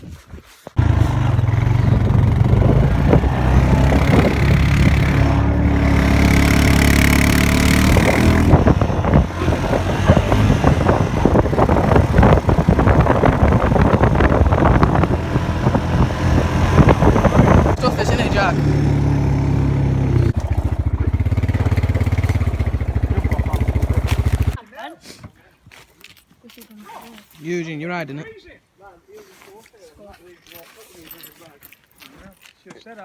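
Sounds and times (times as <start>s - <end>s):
quad bike engine revving: 0.8s - 24.6s.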